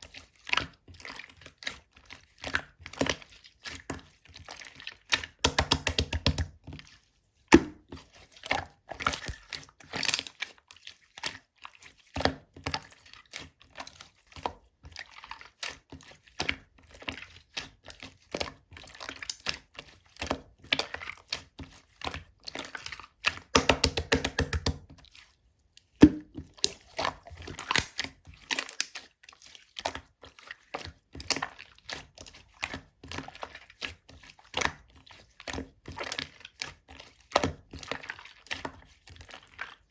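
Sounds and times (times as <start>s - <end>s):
slime clicking and popping: 5.4s - 6.5s, 9.0s - 9.4s, 23.5s - 24.8s, 27.6s - 28.1s.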